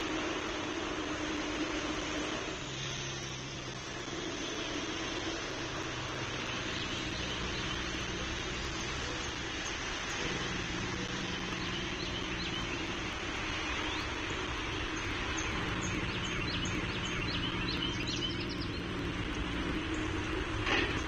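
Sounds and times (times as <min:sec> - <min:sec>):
even hiss: 0:00.0 - 0:21.0
low mechanical hum and rumble: 0:00.0 - 0:21.0
faint bird chirps: 0:04.5 - 0:20.2.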